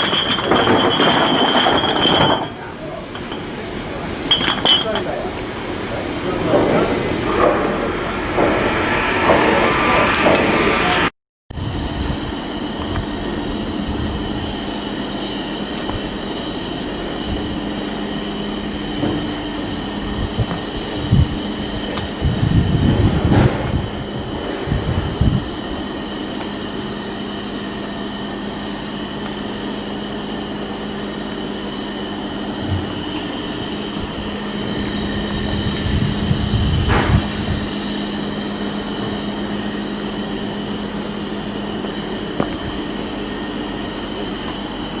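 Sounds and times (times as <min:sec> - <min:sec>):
heavy knocks and clanks: 0:00.0 - 0:03.6, 0:22.4 - 0:26.0
machinery hum: 0:00.0 - 0:45.0.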